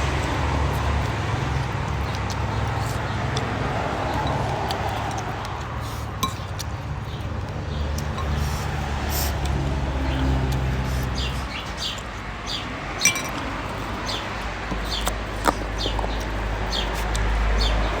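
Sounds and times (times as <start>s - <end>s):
sharp clinks: 13.0s - 13.4s
bird chirps: 14.0s - 17.9s.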